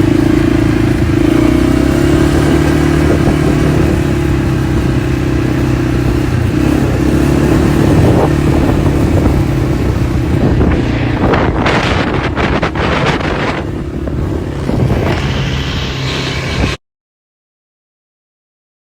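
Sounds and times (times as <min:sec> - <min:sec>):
dirt bike engine running: 0:00.0 - 0:16.8
rough crackling noises: 0:08.2 - 0:16.8.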